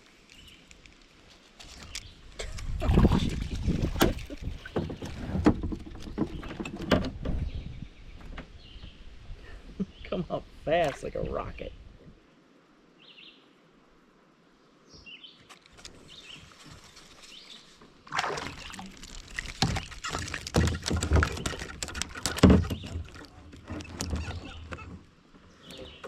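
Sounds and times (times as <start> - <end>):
knocks and rattles against kayak: 2.4 - 9.2, 17.8 - 26.0
water splashing: 2.5 - 5.9, 16.4 - 25.3.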